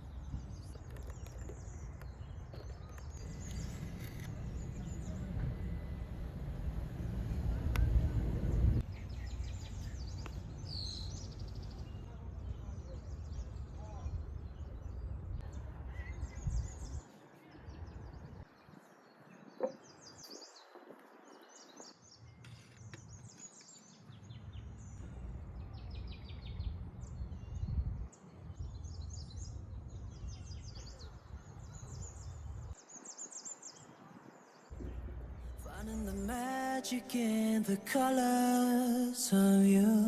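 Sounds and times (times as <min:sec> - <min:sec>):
small birds chirping and trilling: 0:00.0 - 0:07.8, 0:08.5 - 0:40.0
low rumble: 0:03.1 - 0:15.6.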